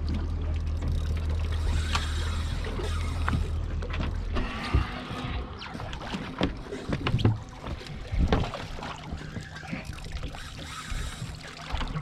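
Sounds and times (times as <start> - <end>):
low rumble of water: 0.0 - 12.0
wind: 0.0 - 12.0
knocks and bumps on a boat: 6.0 - 9.6.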